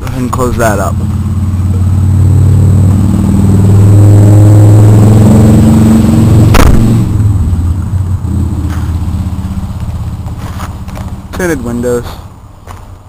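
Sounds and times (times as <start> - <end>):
vehicle engine humming: 0.0 - 13.0
sharp thump: 6.4 - 7.3.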